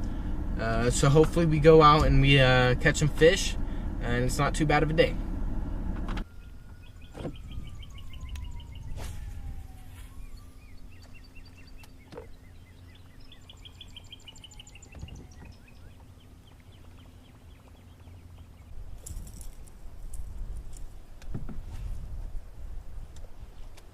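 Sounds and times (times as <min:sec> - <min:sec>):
songbirds trilling: 0:06.2 - 0:20.8
wind on microphone: 0:06.8 - 0:10.6, 0:18.8 - 0:23.6.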